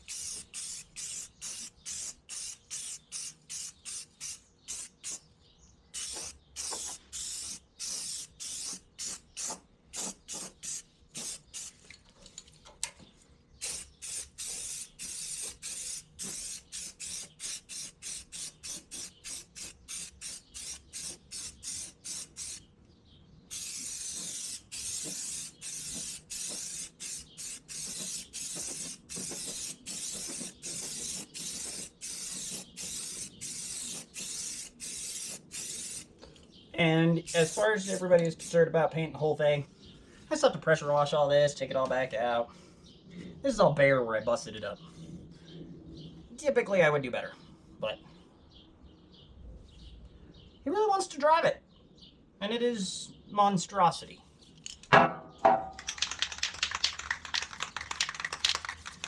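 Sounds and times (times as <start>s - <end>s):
paint spraying in hissing bursts: 0.0s - 5.2s, 6.0s - 11.8s, 13.6s - 22.6s, 23.5s - 36.2s, 37.3s - 38.6s.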